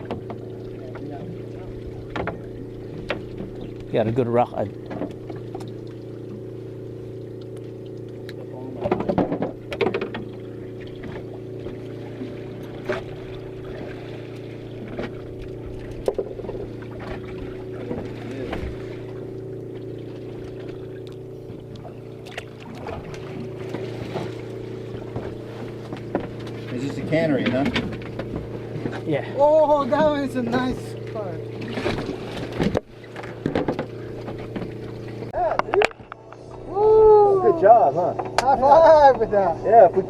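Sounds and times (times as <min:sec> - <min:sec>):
knocks and clatters on board: 0:00.0 - 0:01.1, 0:02.1 - 0:03.7, 0:04.8 - 0:05.7, 0:08.8 - 0:10.4, 0:15.9 - 0:17.2, 0:25.0 - 0:29.1, 0:31.6 - 0:34.8
boat engine running: 0:00.0 - 0:40.0.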